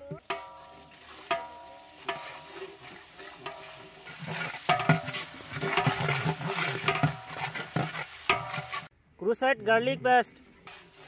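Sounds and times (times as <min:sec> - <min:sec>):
onions frying in hot oil: 0:00.0 - 0:08.9
metal ladle knocking against pot: 0:03.4 - 0:03.8, 0:04.7 - 0:06.2.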